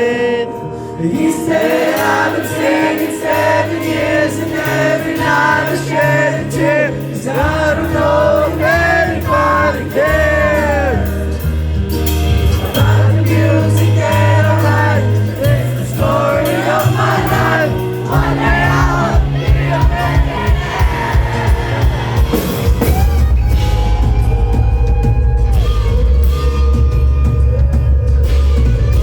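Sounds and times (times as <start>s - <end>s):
person singing: 0.0s - 11.5s
live band playing: 0.0s - 29.0s
steady drum beat: 1.2s - 29.0s.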